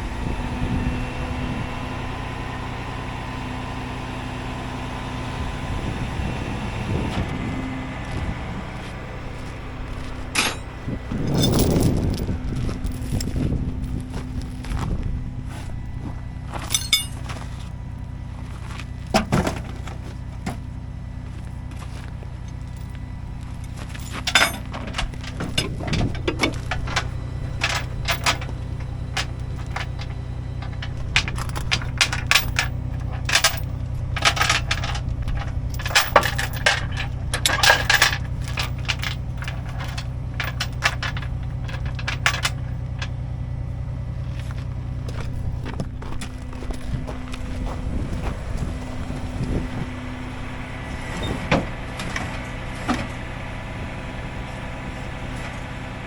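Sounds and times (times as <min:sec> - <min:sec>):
truck engine running: 0:00.0 - 0:56.0
sharp clinks and rattles: 0:09.4 - 0:14.6, 0:16.4 - 0:17.7, 0:21.7 - 0:43.4.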